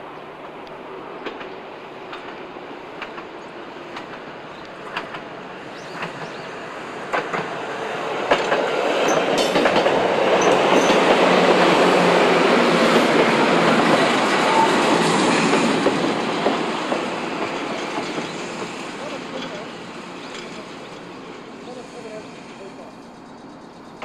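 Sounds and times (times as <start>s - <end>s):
electric train passing: 0.0s - 24.0s
wheels clicking over rail joints: 3.0s - 3.3s, 3.9s - 6.4s, 8.3s - 11.8s.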